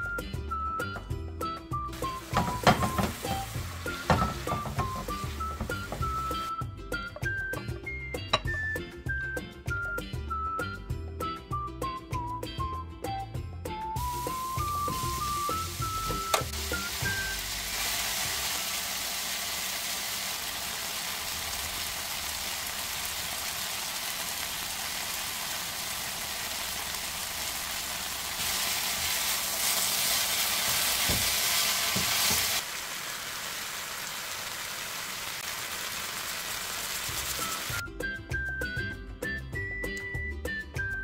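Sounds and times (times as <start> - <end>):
vegetables sizzling in a wok: 1.9 - 7.3, 14.0 - 37.8.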